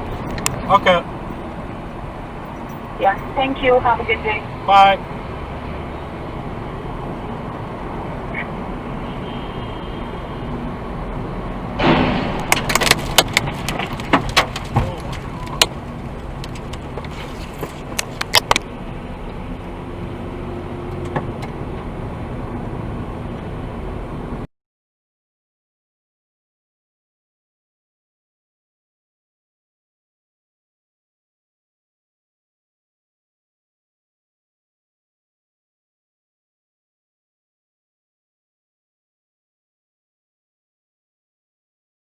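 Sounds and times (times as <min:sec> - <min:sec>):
car road rumble: 0:00.0 - 0:24.5
sudden loud noise: 0:11.8 - 0:15.5
sharp clicks and knocks: 0:11.8 - 0:18.7.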